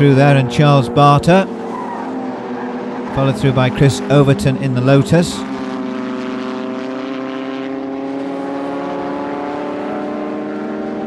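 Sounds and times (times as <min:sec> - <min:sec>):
racing car engine at high revs: 0:00.0 - 0:11.0.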